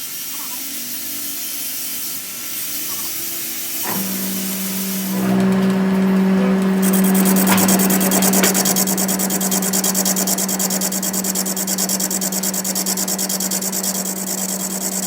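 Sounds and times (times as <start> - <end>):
machine motor humming: 3.5 - 15.0.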